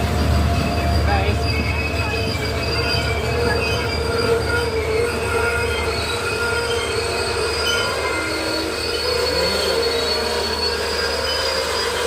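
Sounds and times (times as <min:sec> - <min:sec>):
train rumbling on rails: 0:00.0 - 0:12.0
train wheels squealing: 0:00.0 - 0:12.0.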